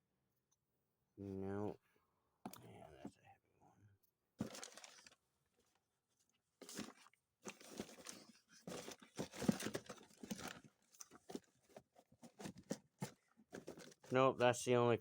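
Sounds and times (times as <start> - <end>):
rummaging through engine parts: 4.4 - 5.2, 6.6 - 14.1.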